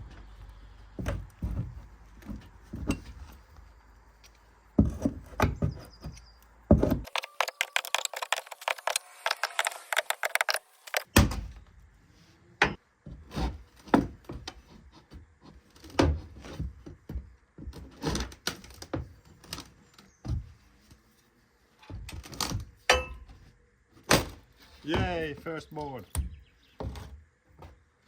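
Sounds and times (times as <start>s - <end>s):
wooden knocks and thumps: 0.0s - 3.5s, 4.7s - 11.5s, 20.2s - 20.6s
crackling clicks: 6.4s - 11.1s.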